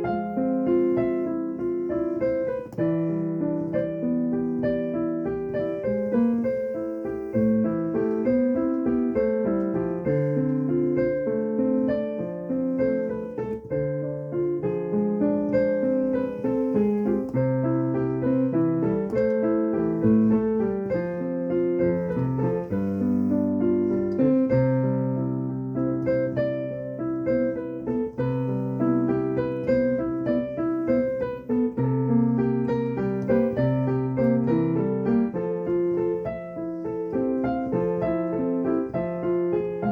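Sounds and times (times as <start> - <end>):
improvised piano playing: 0.0 - 39.9.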